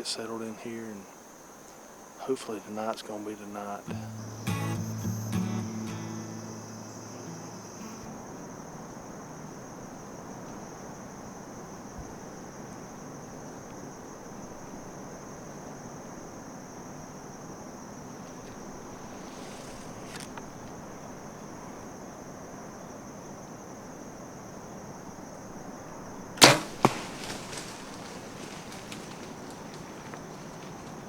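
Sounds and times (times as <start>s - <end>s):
high insect trill: 0.0s - 31.0s
bow shot cracks: 26.4s - 29.5s.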